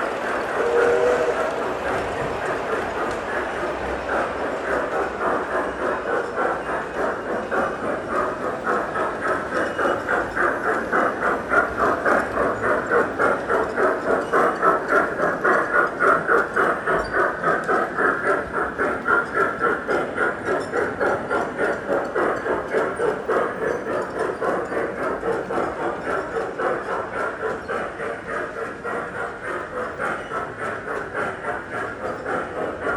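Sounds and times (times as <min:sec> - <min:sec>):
model train wheels clicking: 0:00.0 - 0:32.9.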